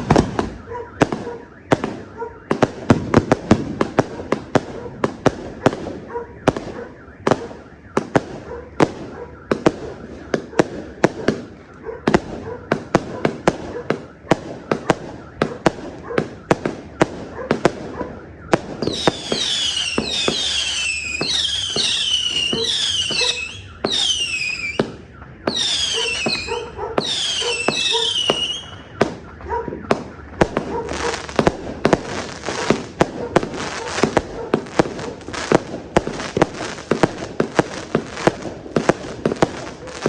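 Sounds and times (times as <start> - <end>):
fireworks shots: 0.0 - 40.0
falling firework whistles: 17.6 - 40.0.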